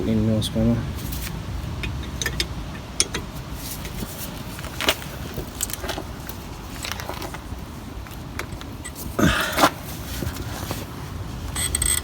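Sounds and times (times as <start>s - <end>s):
spanner clicking on metal bolt: 1.8s - 3.3s, 11.6s - 12.0s.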